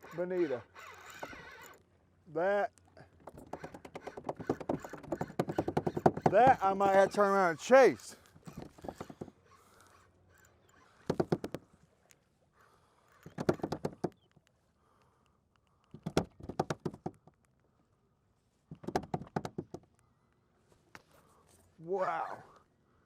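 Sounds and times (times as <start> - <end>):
fishing reel clicking: 0.0 - 1.8, 6.6 - 11.1.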